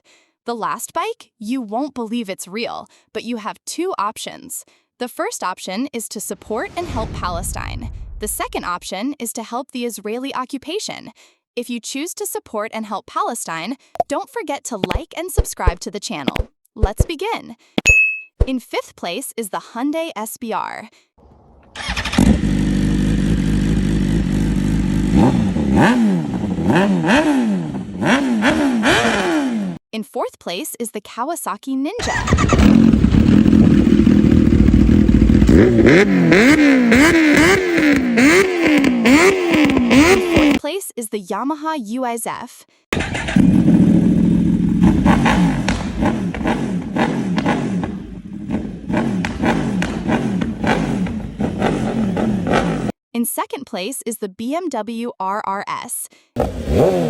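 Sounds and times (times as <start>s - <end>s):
motorcycle engine revving: 21.3s - 29.8s, 32.0s - 40.6s, 43.0s - 53.0s, 56.4s - 57.0s.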